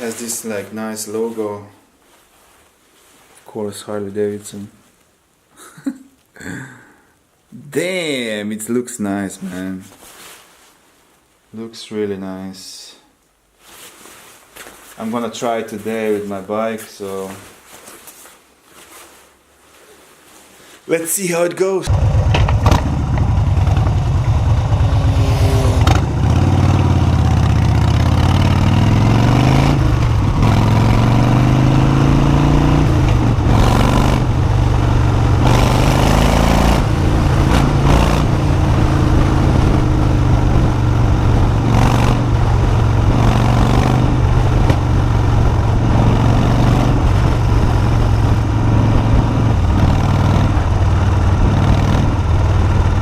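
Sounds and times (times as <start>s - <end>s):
loud rushes of noise: 21.9s - 27.5s
motorcycle engine accelerating: 21.9s - 53.0s.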